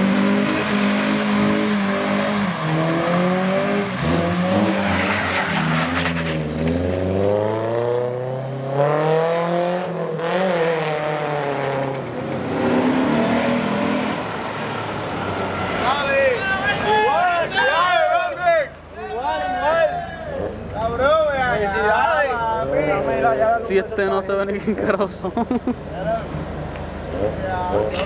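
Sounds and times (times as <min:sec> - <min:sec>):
car engine revving hard: 0:00.0 - 0:15.0.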